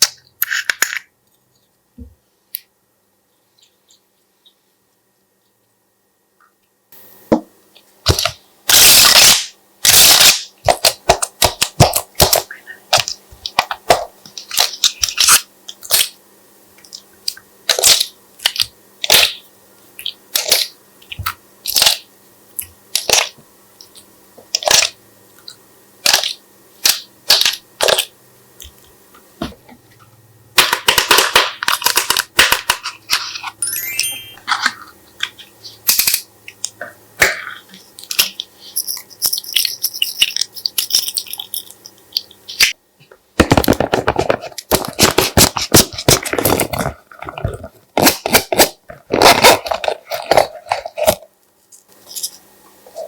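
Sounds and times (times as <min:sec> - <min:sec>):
crackling slime squishes: 0:16.8 - 0:28.9.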